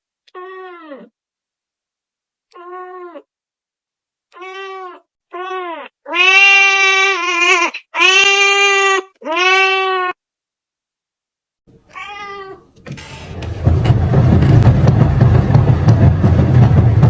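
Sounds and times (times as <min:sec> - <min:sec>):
kitten meowing: 0:02.5 - 0:03.2, 0:04.4 - 0:10.2, 0:11.7 - 0:12.8.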